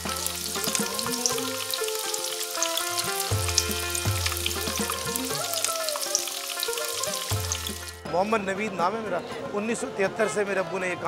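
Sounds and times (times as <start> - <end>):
kebabs sizzling in oil: 0.0 - 8.0
background music with low bass: 2.7 - 5.8.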